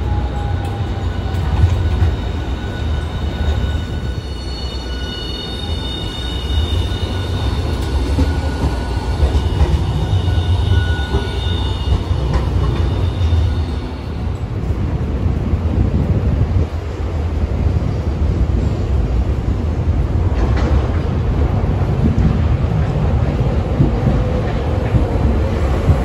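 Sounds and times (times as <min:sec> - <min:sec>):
high-pitched wheel squeal: 0:00.0 - 0:14.4
tram wheels rumbling on rail: 0:00.0 - 0:26.0.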